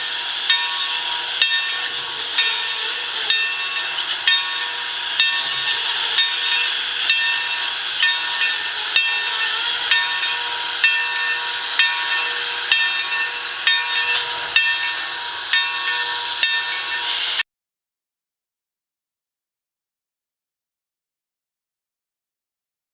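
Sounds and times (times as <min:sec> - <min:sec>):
high steady tones: 0:00.0 - 0:17.4
steam train hiss: 0:00.0 - 0:17.4.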